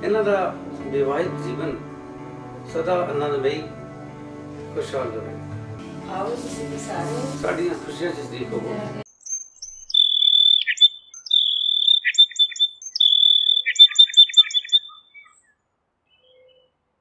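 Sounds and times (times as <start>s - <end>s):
bird whistling and chirping: 9.2s - 16.7s.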